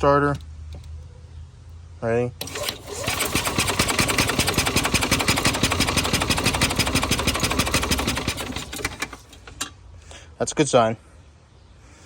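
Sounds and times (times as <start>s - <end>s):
engine cranking on starter: 2.4s - 9.7s.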